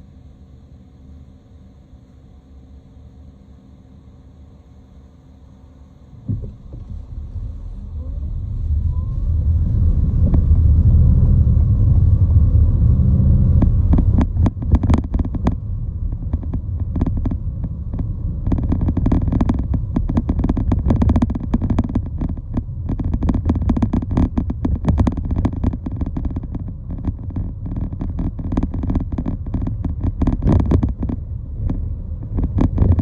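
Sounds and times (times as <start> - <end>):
large vehicle rumbling: 6.1 - 33.0
knock: 6.2 - 7.0.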